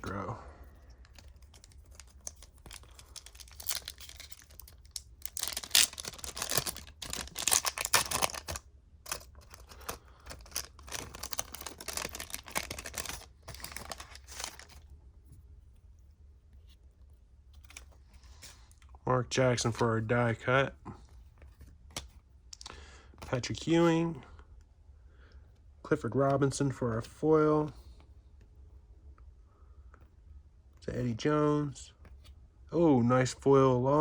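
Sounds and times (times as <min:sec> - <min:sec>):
cards being handled: 0:00.0 - 0:14.9, 0:17.5 - 0:18.8, 0:21.0 - 0:23.6
foil wrapper tearing and crinkling: 0:01.4 - 0:14.8.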